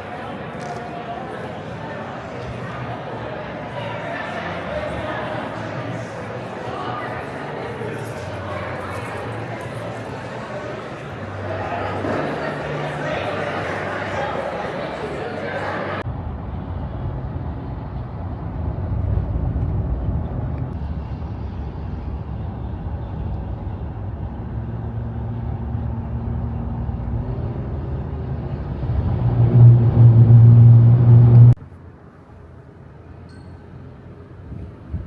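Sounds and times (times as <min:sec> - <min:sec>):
motor vehicle running: 0:16.0 - 0:31.6.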